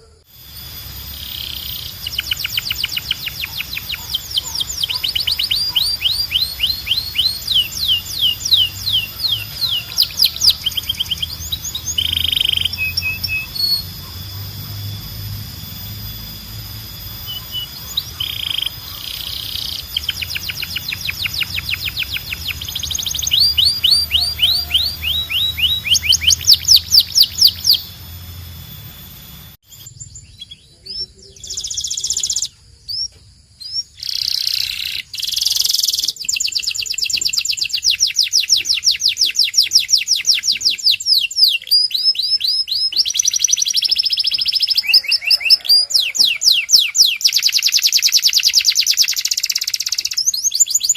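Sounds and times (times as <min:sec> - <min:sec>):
low hum: 0:00.0 - 0:31.4
canary singing trills: 0:00.0 - 0:50.9.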